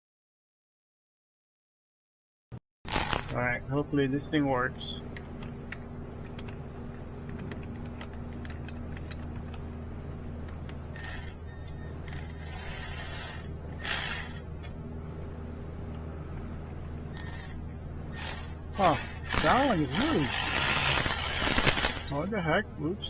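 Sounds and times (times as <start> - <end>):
steady low hum: 2.9 - 23.0
ratchet wrench clicking: 11.0 - 11.4, 12.1 - 14.4, 17.2 - 17.6, 18.2 - 22.3.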